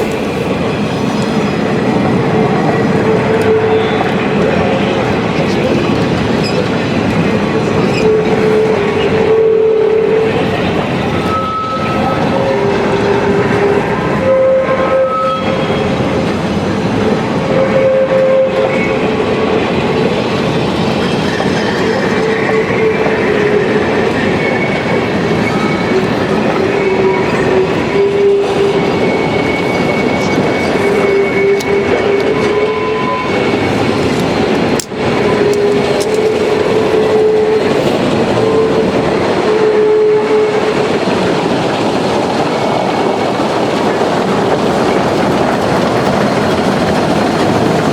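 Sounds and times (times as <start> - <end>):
steam train exhaust and running gear: 0.0 - 47.9
wheel flanges squealing: 20.4 - 39.3.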